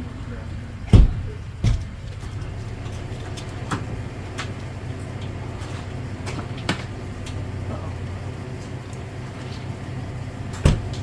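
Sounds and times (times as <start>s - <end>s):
steady low hum: 0.0s - 11.0s
light clicks and knocks of poles: 1.6s - 9.8s.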